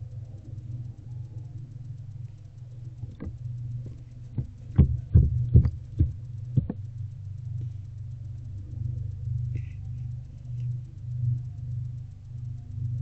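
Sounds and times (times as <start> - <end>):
steady low hum: 0.0 - 13.0
knocks and thumps in nest box: 3.2 - 6.8.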